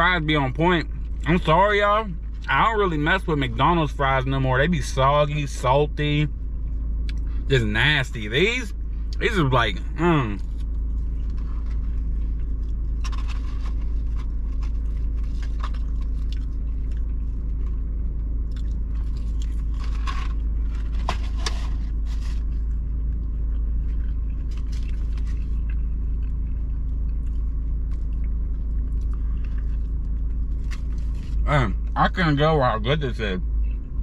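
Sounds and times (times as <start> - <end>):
car engine idling hum: 0.0 - 34.0
chewing and biting food: 10.4 - 31.4.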